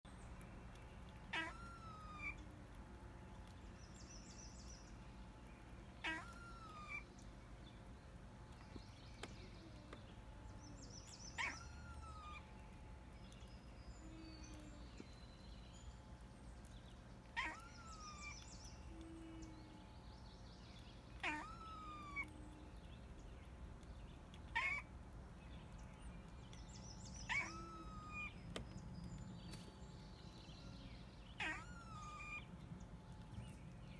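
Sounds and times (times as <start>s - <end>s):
cat meowing: 1.3s - 2.4s, 6.0s - 7.0s, 11.4s - 12.4s, 17.4s - 18.3s, 21.2s - 22.3s, 24.6s - 24.8s, 27.3s - 28.3s, 31.4s - 32.5s.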